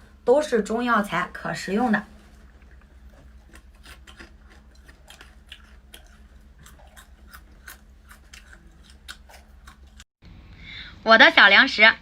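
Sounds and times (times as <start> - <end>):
crunchy chewing: 2.3 - 10.1.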